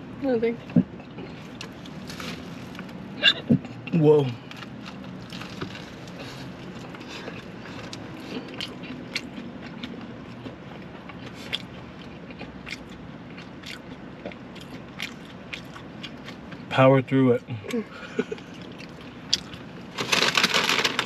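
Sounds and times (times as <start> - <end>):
chewing and biting food: 0.7 - 16.7, 18.3 - 21.0
food crunching: 3.7 - 16.6, 18.3 - 21.0.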